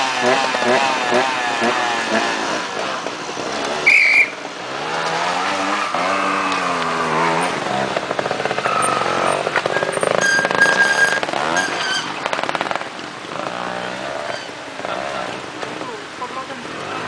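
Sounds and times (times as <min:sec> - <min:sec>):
motorcycle engine revving: 0:00.0 - 0:17.0
high squeal: 0:03.8 - 0:04.4, 0:09.6 - 0:12.2.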